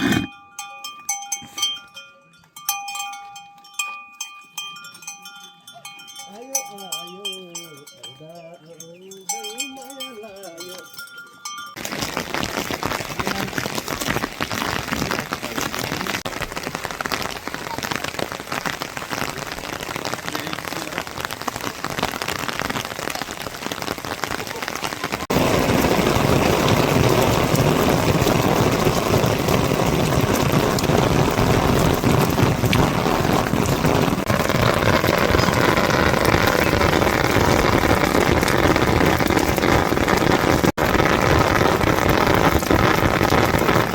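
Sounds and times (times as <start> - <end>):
ringing bell-like tones: 0.3 - 11.8
heavy rain: 11.7 - 43.9.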